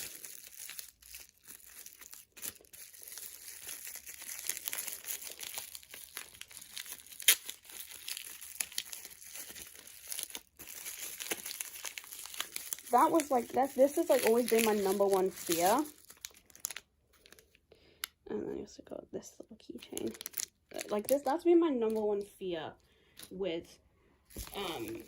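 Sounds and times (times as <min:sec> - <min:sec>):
sharp crackle: 0:00.0 - 0:17.5
packaging crinkling and tearing: 0:00.0 - 0:17.7, 0:19.8 - 0:22.3, 0:24.3 - 0:25.0.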